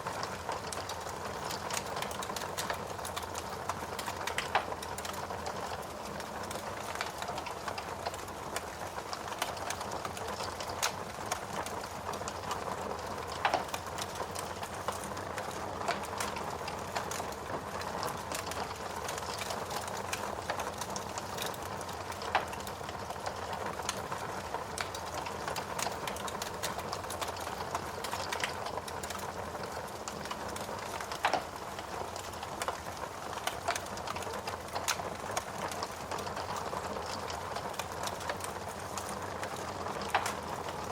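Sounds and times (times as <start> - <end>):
wood fire crackling and hissing: 0.0 - 40.9.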